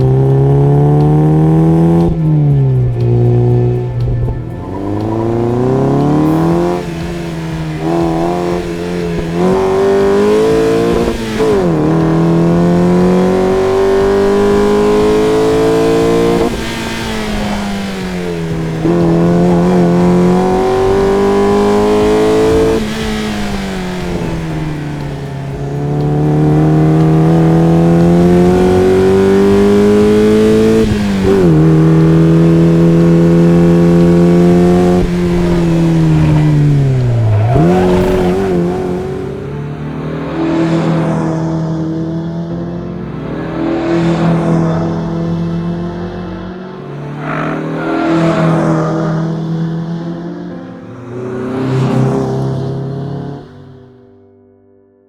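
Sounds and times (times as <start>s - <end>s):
car engine revving high: 0.0s - 54.0s.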